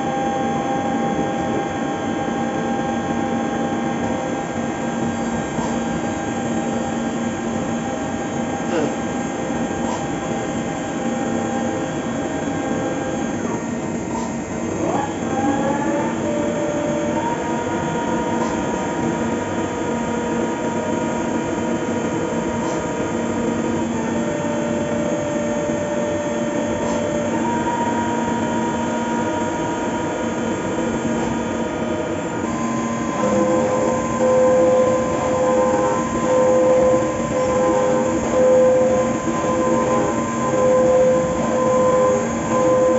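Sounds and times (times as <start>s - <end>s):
milling machine cutting: 32.4s - 42.9s.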